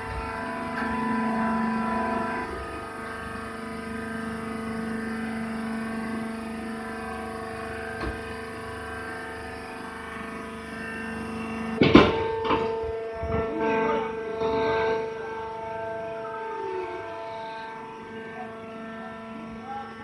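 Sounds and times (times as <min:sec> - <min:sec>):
hydraulic power unit humming: 0:00.0 - 0:20.0
machine clunks and clatter: 0:07.9 - 0:08.5, 0:11.8 - 0:13.5.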